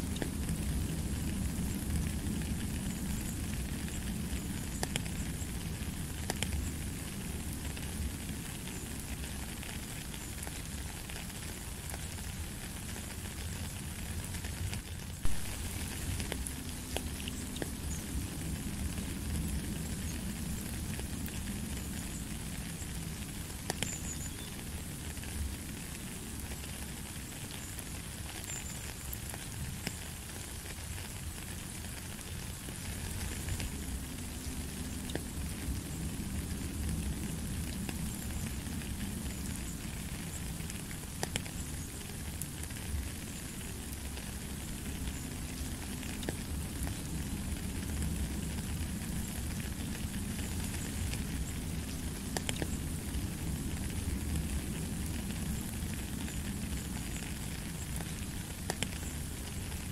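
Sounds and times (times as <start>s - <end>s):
rain pattering on a puddle: 0.0s - 59.9s
water drips: 14.8s - 24.7s.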